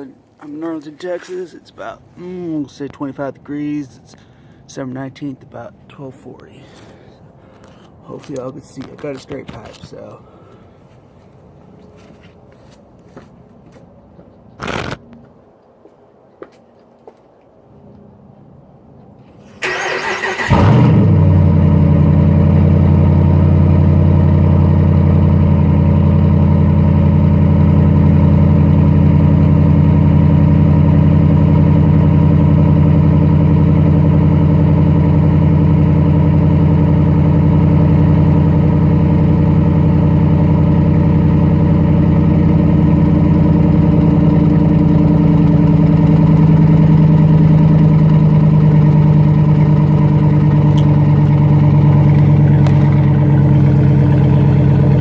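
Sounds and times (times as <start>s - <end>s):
engine starting and idling: 19.3s - 55.0s.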